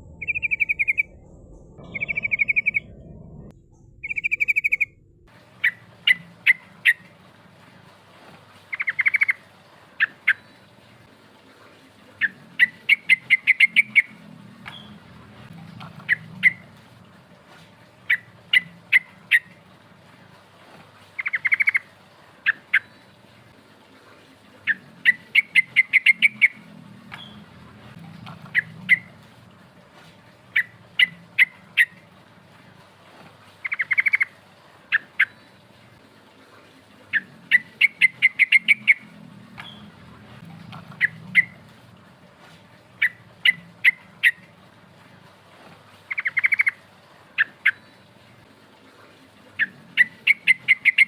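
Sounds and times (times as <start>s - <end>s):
bulbul calling: 0.0s - 1.2s, 1.8s - 7.1s, 8.7s - 9.4s, 12.2s - 15.0s, 15.8s - 16.7s, 21.2s - 22.9s, 24.6s - 27.5s, 28.2s - 29.4s, 30.5s - 32.0s, 33.6s - 34.3s, 37.1s - 40.0s, 40.6s - 41.6s, 46.1s - 46.8s, 49.6s - 51.0s
faint low hum: 0.0s - 8.7s, 9.4s - 21.0s, 21.9s - 46.0s.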